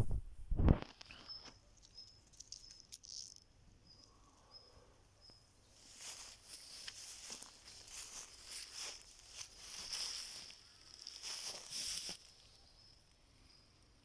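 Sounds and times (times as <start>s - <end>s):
footsteps in dry leaves: 5.8s - 12.6s.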